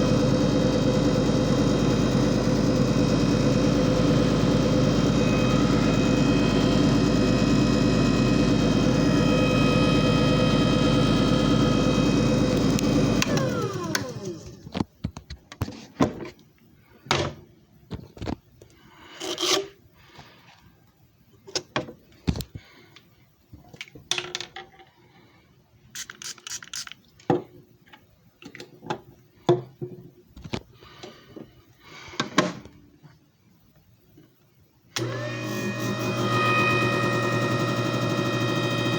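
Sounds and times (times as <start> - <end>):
machine whining: 0.0 - 14.6, 35.0 - 38.9.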